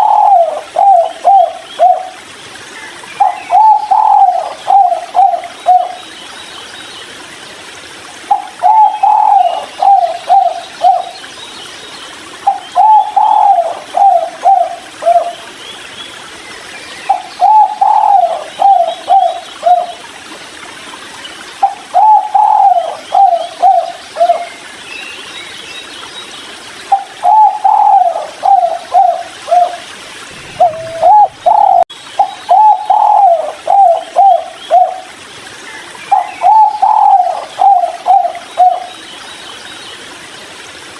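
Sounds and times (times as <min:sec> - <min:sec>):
dove cooing: 0:00.0 - 0:02.2, 0:03.2 - 0:06.0, 0:08.3 - 0:11.1, 0:12.5 - 0:15.3, 0:17.1 - 0:20.0, 0:21.6 - 0:24.5, 0:26.9 - 0:35.1, 0:36.1 - 0:38.9.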